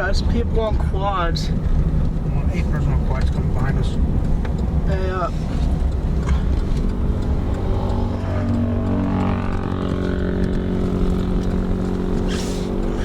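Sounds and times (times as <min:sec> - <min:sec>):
car rumble: 0:00.0 - 0:13.0
quad engines droning: 0:01.4 - 0:13.0.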